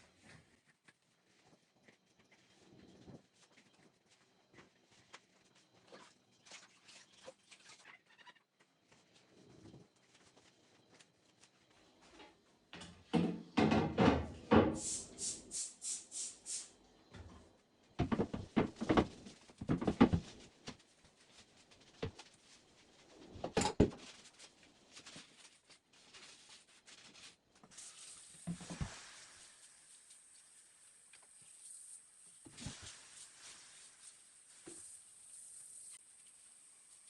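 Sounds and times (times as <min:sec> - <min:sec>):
shelves and containers clattering: 0:12.8 - 0:14.8, 0:18.0 - 0:20.5
short hissing bursts: 0:14.8 - 0:16.8.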